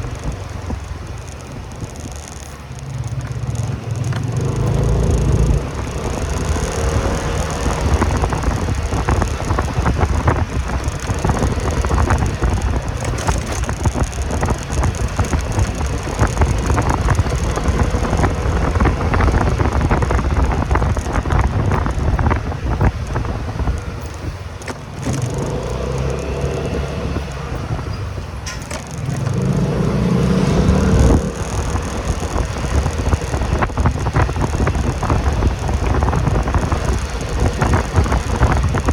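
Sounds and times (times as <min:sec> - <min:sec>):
motorcycle engine rumble: 0:00.0 - 0:38.9
rattling clicks: 0:00.0 - 0:38.9
wind and road noise: 0:00.0 - 0:38.9.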